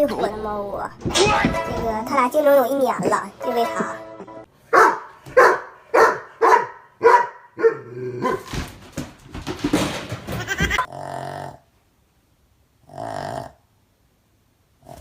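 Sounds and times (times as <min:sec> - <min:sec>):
cats crying: 0:10.3 - 0:10.9.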